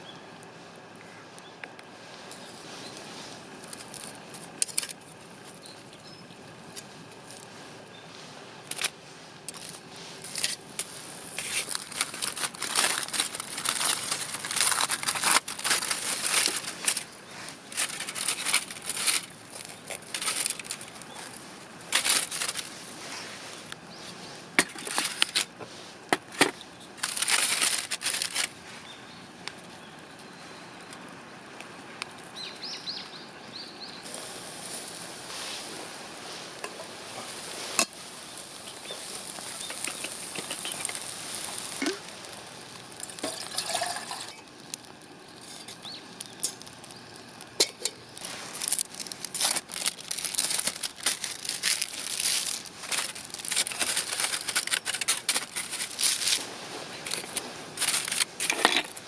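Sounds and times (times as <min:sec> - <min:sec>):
steady background noise: 0:00.0 - 0:59.0
material rustling and crinkling: 0:06.7 - 0:28.9, 0:34.0 - 0:59.0.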